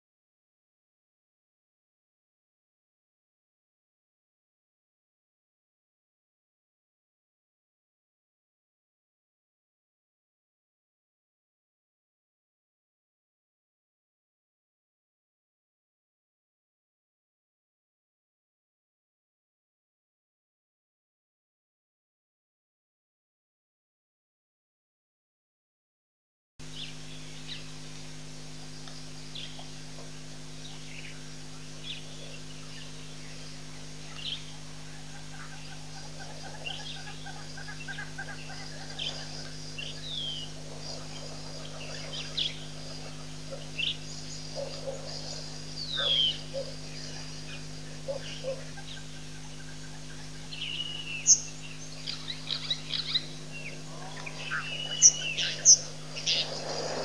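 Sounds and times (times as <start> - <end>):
steady low hum: 26.6 - 57.0
birds chirping and whistling: 36.5 - 57.0.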